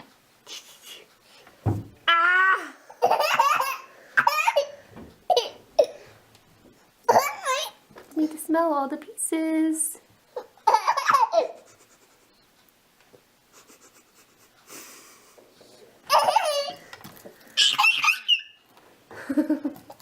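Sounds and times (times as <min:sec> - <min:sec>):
small child laughing and squealing: 0:02.1 - 0:04.7, 0:16.1 - 0:16.8, 0:17.6 - 0:18.6.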